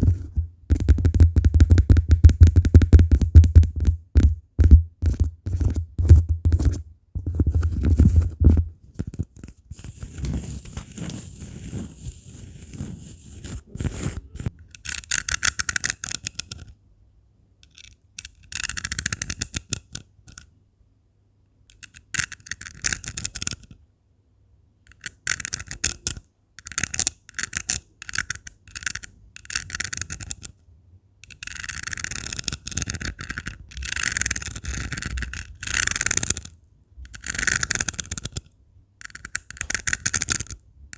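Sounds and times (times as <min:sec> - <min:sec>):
scraping on cork: 0:05.0 - 0:16.7, 0:31.2 - 0:36.5, 0:37.1 - 0:38.4, 0:39.0 - 0:40.6
scratching over rhinestones: 0:09.0 - 0:16.2.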